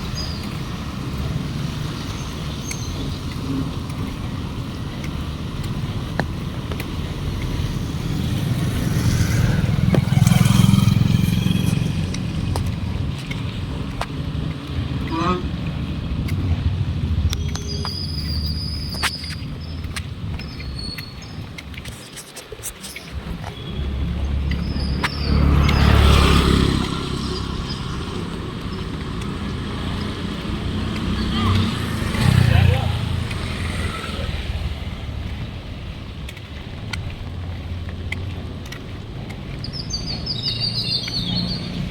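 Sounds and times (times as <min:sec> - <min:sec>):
vehicle engine rumble passing: 0:07.2 - 0:21.4, 0:23.1 - 0:41.9
steady rain: 0:10.4 - 0:18.3.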